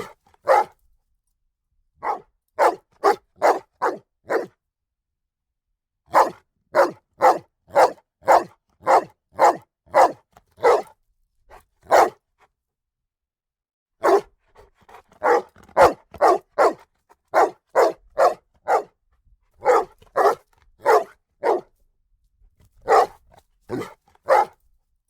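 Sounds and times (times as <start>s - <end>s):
dog barking: 0.0s - 0.8s, 2.0s - 4.5s, 6.1s - 10.9s, 11.8s - 12.2s, 14.0s - 14.3s, 14.9s - 19.0s, 19.6s - 21.7s, 22.8s - 24.6s.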